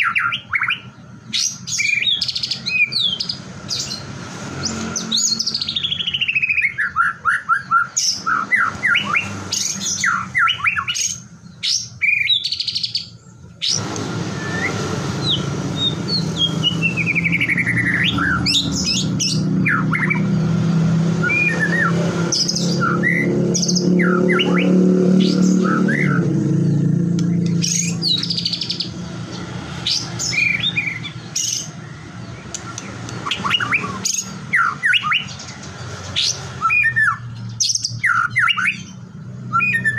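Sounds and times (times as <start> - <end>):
bird singing whistles and trills: 0.0 - 29.0, 29.8 - 35.6, 36.2 - 39.9
steady low hum: 13.5 - 18.9.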